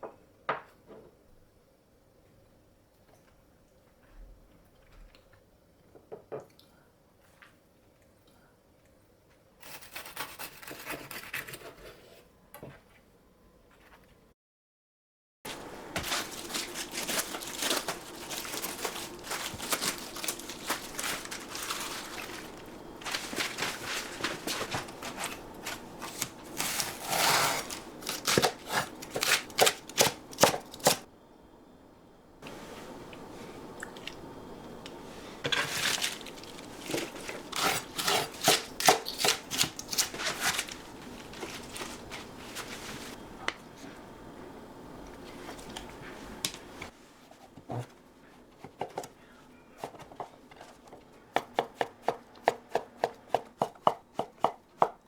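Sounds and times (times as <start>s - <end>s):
food packaging rustling and crackling: 15.5s - 31.1s, 32.4s - 44.2s, 44.9s - 49.0s
knife chopping on cutting board: 37.5s - 40.0s.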